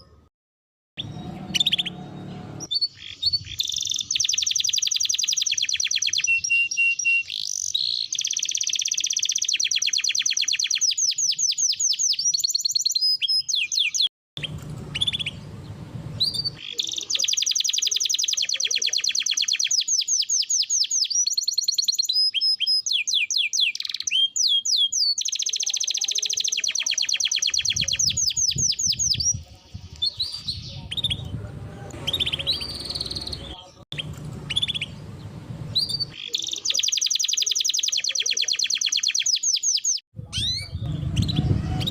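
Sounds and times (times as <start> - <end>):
canary singing fast trills: 1.0 - 41.9
low rumble: 30.7 - 36.1.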